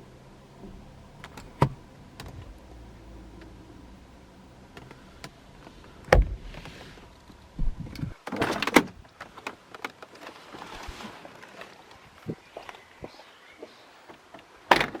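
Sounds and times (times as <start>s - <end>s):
car door thudding shut: 0.6s - 2.5s, 6.1s - 6.7s
clattering rustle: 8.0s - 12.9s.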